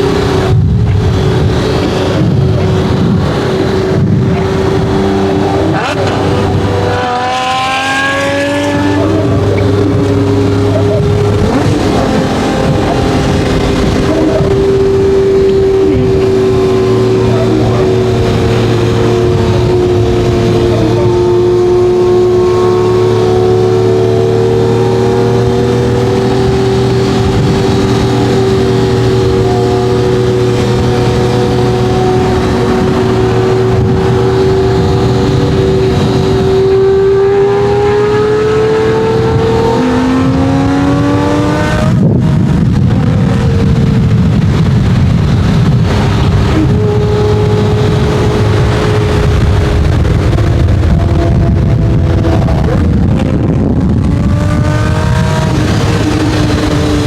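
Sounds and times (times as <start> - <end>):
sports car engine accelerating: 0.0 - 57.0.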